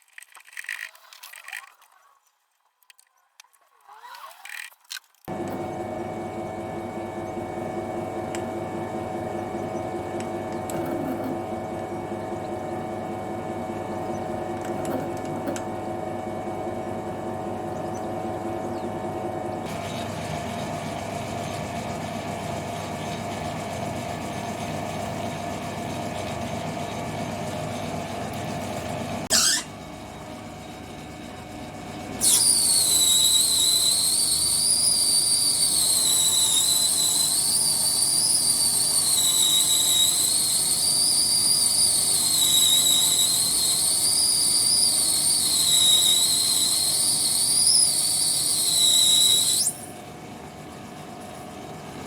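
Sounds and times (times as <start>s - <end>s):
machine tool humming: 5.3s - 52.0s
cutting tool squealing: 9.7s - 11.4s, 29.2s - 29.8s, 32.2s - 49.9s.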